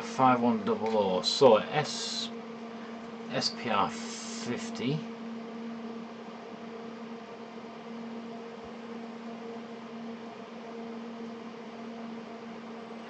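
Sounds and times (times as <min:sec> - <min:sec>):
two-tone background hum: 0:00.0 - 0:13.0
even hiss: 0:03.3 - 0:05.0.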